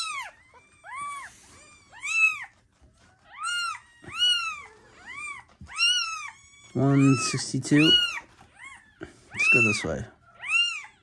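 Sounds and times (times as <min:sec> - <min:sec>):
kitten mewing: 0:05.2 - 0:10.9.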